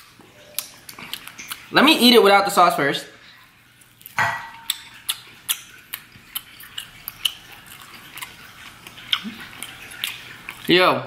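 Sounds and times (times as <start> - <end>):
wet mouth clicks and smacks: 0.6 - 1.7, 4.0 - 10.7.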